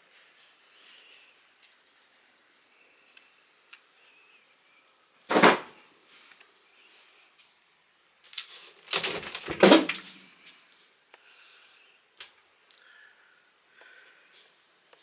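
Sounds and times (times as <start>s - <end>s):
wooden wardrobe opening and shutting: 5.3s - 5.7s, 8.9s - 10.2s.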